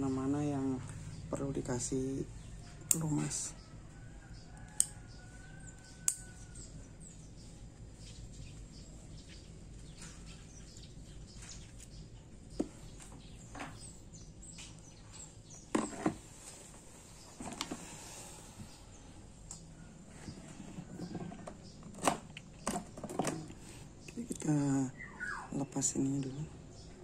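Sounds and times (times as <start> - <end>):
faint bird chirps: 23.4 - 27.0.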